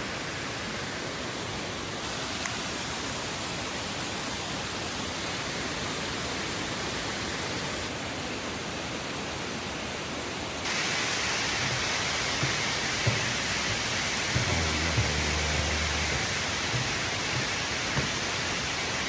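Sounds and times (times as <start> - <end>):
steady rushing noise: 10.7 - 19.0.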